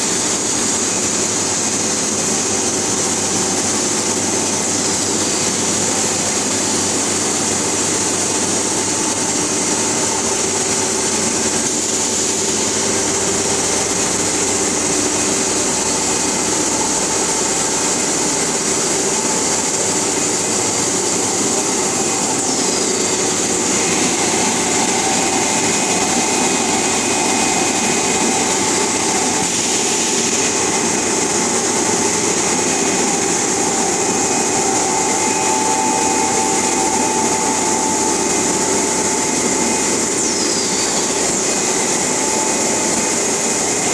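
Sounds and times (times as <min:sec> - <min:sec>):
steady machine hiss: 0:00.0 - 0:43.9
constant hum tones: 0:11.6 - 0:43.9.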